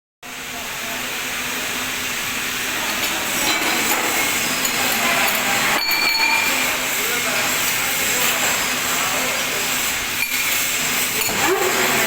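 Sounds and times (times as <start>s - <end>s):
hand tools clinking on metal: 4.6s - 6.6s.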